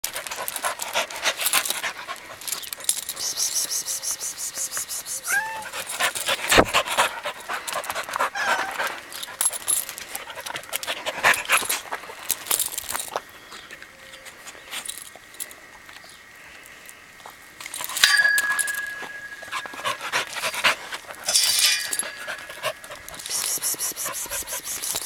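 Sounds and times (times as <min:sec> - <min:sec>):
animal panting: 0:00.0 - 0:12.4, 0:18.7 - 0:25.0
animal whining: 0:03.2 - 0:06.7, 0:08.2 - 0:09.0.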